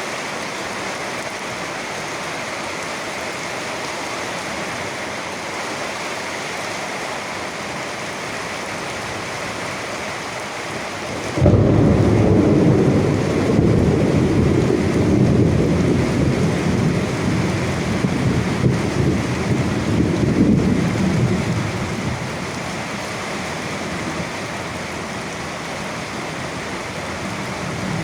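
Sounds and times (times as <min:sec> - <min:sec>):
steady rain hiss: 0:00.0 - 0:28.0
thunder rumbling: 0:11.1 - 0:25.3.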